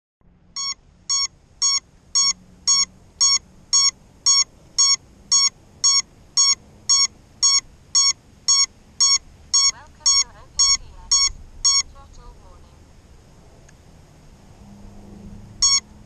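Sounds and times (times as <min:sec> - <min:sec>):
electronic beeper beeping: 0:00.6 - 0:12.0, 0:15.6 - 0:15.8.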